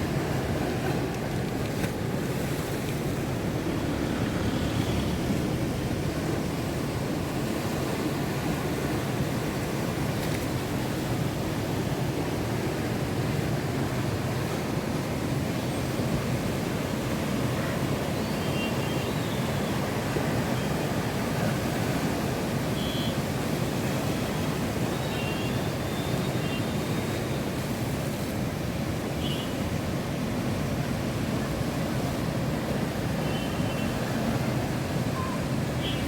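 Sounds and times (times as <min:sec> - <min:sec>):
sea surf washing in: 0:00.0 - 0:18.1, 0:26.9 - 0:36.0.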